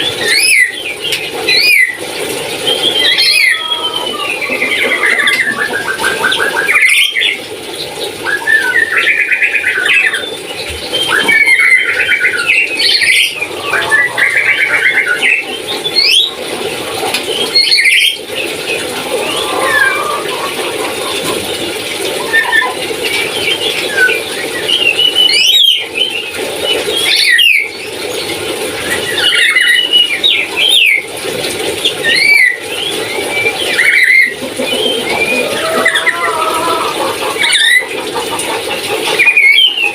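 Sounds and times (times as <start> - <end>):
parrot squealing calls: 2.8 - 7.4, 11.0 - 16.4, 19.0 - 21.1, 33.7 - 38.0.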